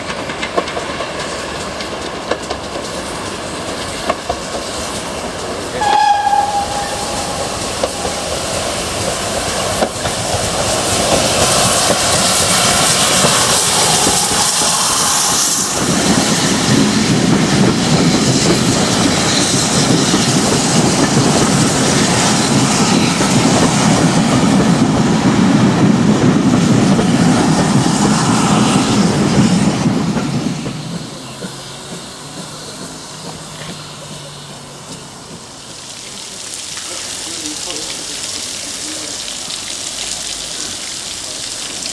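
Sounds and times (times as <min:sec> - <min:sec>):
train wheels clattering: 0:00.0 - 0:35.7
train hiss: 0:00.0 - 0:41.9
train wheel squeal: 0:05.7 - 0:09.8, 0:10.7 - 0:24.3.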